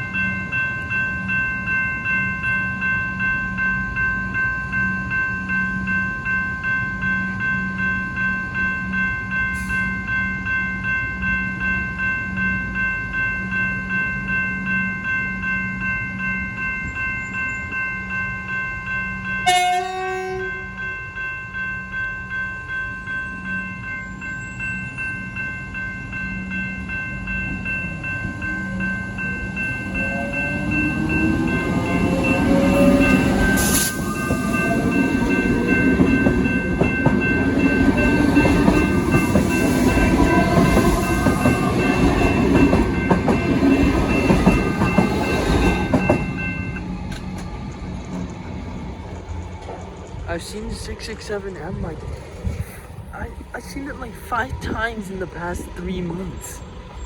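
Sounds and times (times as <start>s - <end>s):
level crossing warning bell: 0.0s - 52.0s, 53.1s - 57.0s
train horn blast: 19.4s - 20.7s.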